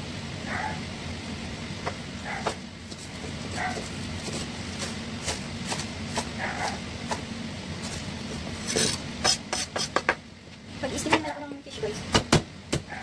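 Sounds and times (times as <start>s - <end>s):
steady low hum: 0.0s - 13.0s
knife chopping on wooden board: 3.6s - 7.3s, 9.2s - 10.2s.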